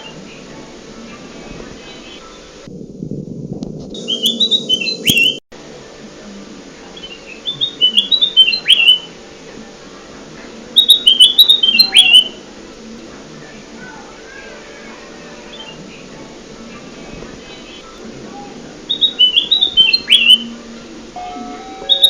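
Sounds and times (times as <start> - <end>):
faint steady hum: 0.0 - 22.0
bird whistling song: 4.0 - 5.4, 7.0 - 9.1, 10.8 - 12.4, 18.9 - 20.6, 21.2 - 22.0.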